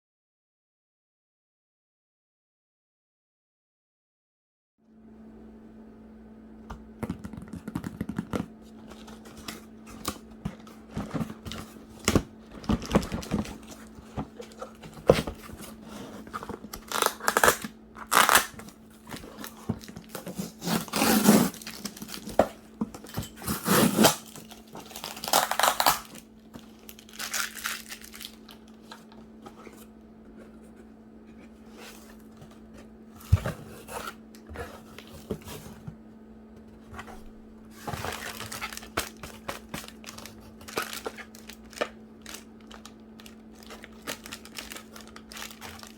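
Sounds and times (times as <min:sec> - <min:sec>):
steady low hum: 0:04.8 - 0:45.9
plastic and paper crinkling: 0:07.6 - 0:30.8, 0:36.9 - 0:45.9
paper tearing: 0:20.3 - 0:21.9, 0:23.4 - 0:24.3.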